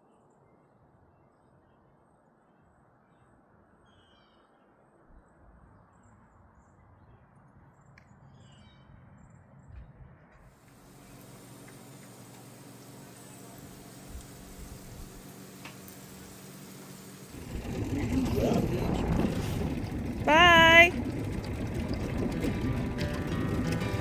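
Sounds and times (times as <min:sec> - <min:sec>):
steady hiss: 0:10.7 - 0:17.6
low rumble: 0:17.3 - 0:24.0.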